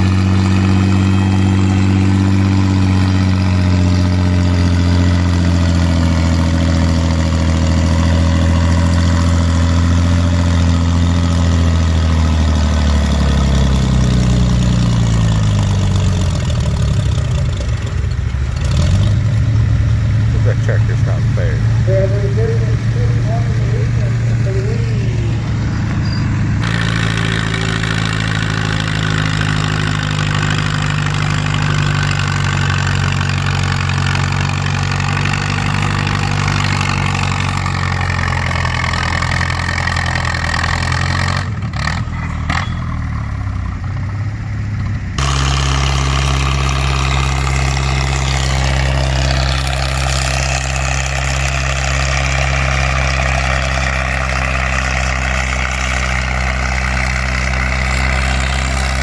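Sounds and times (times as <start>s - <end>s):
deep engine note: 0.0s - 40.6s, 44.8s - 59.0s
tractor engine under load: 0.0s - 59.0s.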